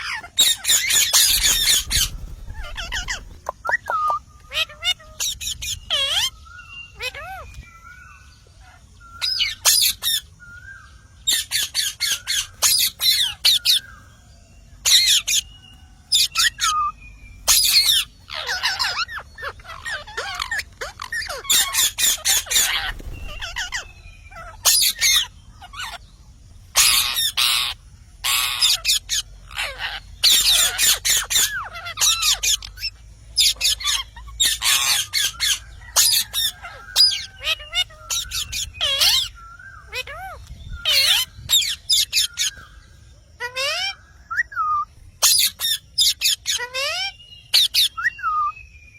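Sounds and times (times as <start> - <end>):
thin gliding whistles: 0.0 - 4.4, 20.4 - 26.1
parrot squawking: 0.0 - 7.4, 17.5 - 26.0, 26.7 - 42.6, 43.4 - 48.5.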